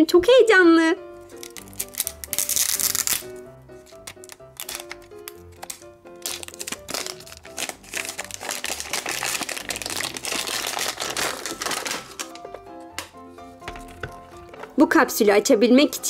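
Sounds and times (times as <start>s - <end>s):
light background music: 0.0s - 16.0s
wrapping crinkling and tearing: 1.2s - 12.5s.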